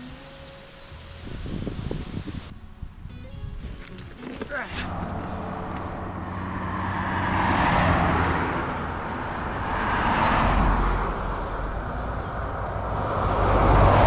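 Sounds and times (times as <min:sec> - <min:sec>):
cars passing on a road: 0:03.6 - 0:14.0.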